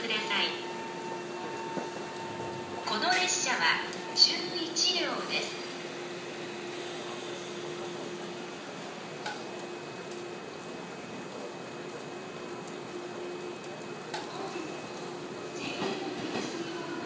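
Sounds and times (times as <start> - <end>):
electric train hissing: 0.0 - 10.0
faint hum: 0.0 - 17.0.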